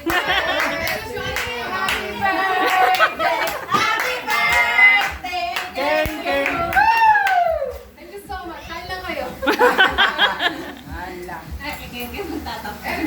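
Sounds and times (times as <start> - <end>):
hands clapping: 0.0 - 7.9
overlapping voices: 0.0 - 8.0.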